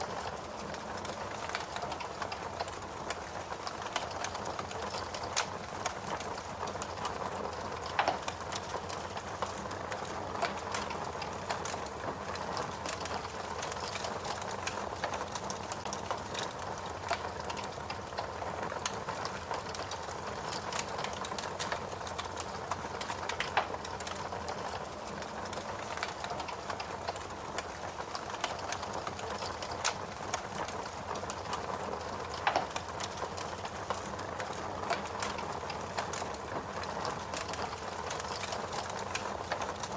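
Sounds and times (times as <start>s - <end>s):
wood fire crackling: 0.0s - 39.9s
fire pops: 25.5s - 39.9s.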